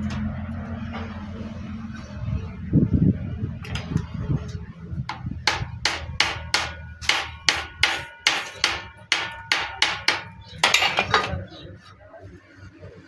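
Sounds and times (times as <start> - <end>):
hammer striking metal: 5.1 - 11.3.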